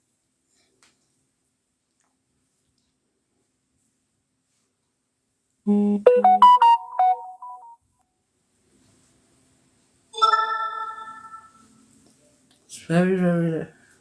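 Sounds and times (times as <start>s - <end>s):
phone alert tones stepping upward: 5.7s - 7.8s
ringing phone chime: 6.0s - 7.7s, 10.2s - 11.6s.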